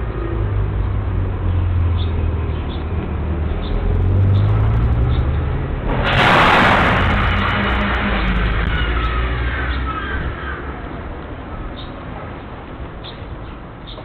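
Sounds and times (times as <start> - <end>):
car engine drone: 0.0 - 11.6
tyre road noise: 0.0 - 14.0
loud hissing burst: 5.9 - 9.4.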